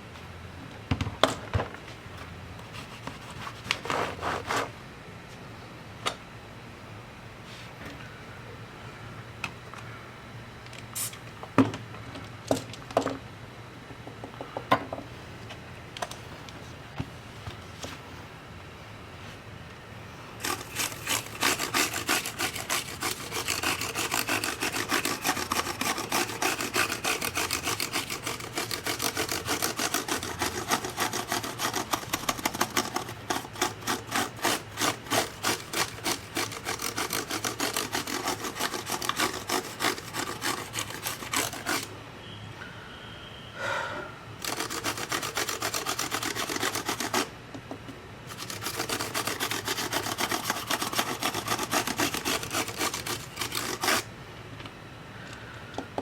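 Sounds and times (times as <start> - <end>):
scrubbing on a hard surface: 20.4 - 41.8, 48.3 - 54.0.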